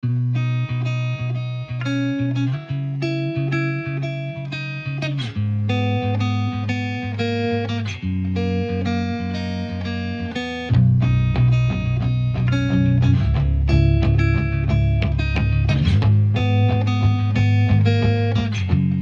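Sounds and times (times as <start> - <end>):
plucked guitar music: 0.0 - 19.0
bass line: 8.0 - 19.0.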